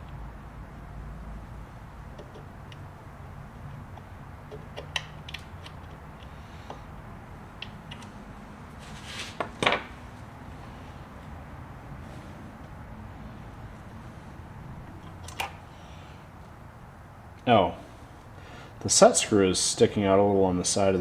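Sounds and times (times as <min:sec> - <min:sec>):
light metal clicks and taps: 0:02.1 - 0:02.9, 0:03.7 - 0:08.2.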